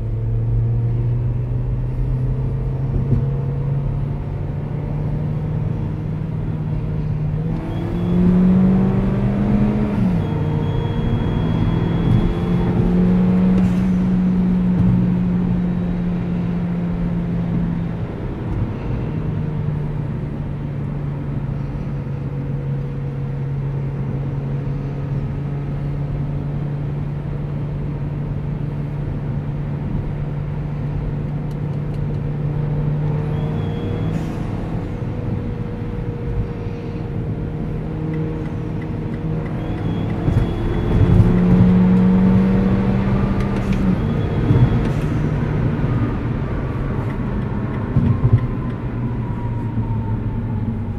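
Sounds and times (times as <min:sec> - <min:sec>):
car engine accelerating hard: 0:00.0 - 0:50.9
turbo whine: 0:06.7 - 0:16.0, 0:37.6 - 0:50.9.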